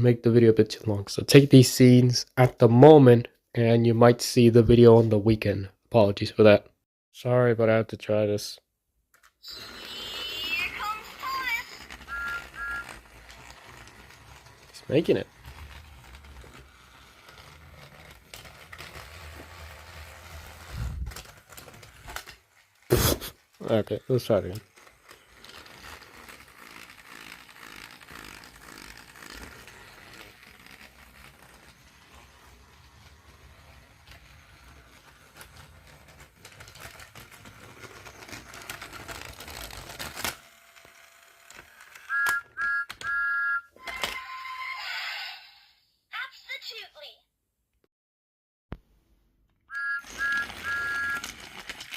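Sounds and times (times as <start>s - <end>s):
electronic toy train toots: 9.5s - 11.5s, 49.7s - 51.3s
toy train motor hum: 9.5s - 42.2s, 49.7s - 51.9s.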